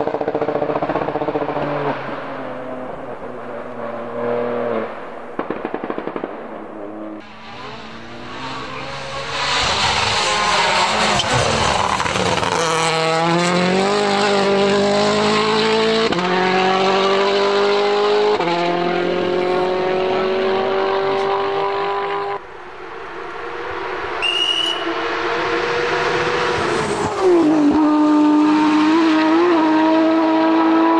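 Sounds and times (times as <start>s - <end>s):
another car engine: 0.0s - 24.2s
rally car engine accelerating: 0.0s - 24.2s, 24.8s - 30.9s.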